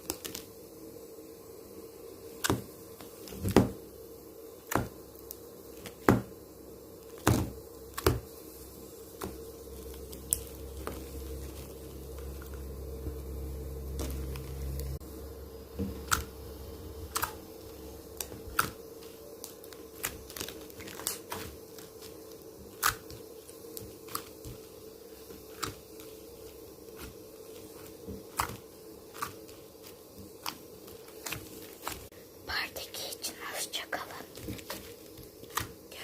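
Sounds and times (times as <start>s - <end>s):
faint steady hum: 0.0s - 36.0s
slime clicking and popping: 17.1s - 17.4s, 18.2s - 18.8s.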